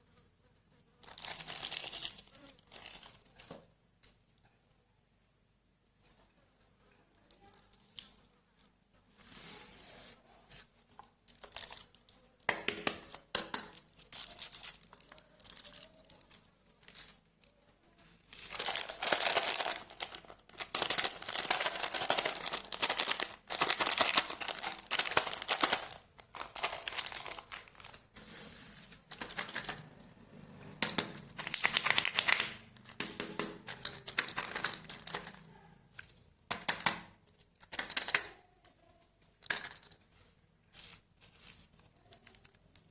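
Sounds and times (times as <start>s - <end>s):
wrappers crinkling and tearing: 1.0s - 3.3s, 11.3s - 12.2s, 13.1s - 17.3s, 18.2s - 28.1s.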